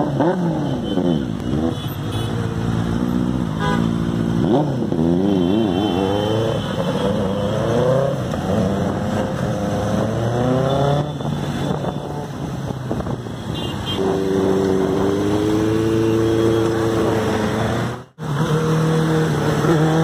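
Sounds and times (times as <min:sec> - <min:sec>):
motorcycle engine revving: 0:00.0 - 0:13.1, 0:13.9 - 0:20.0.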